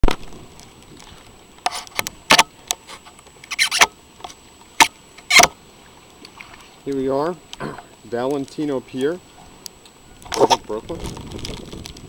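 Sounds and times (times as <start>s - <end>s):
camera handling noise: 0.1s - 5.6s.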